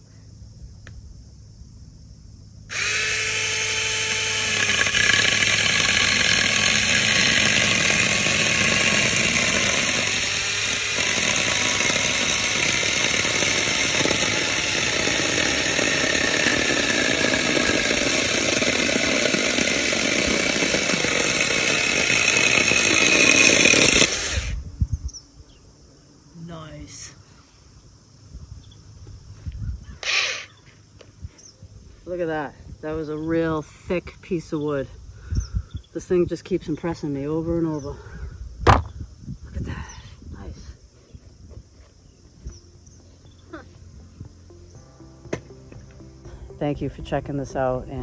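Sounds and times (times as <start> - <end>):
chainsaw cutting wood: 2.7 - 24.7, 30.0 - 30.5, 38.7 - 38.9, 45.3 - 46.1.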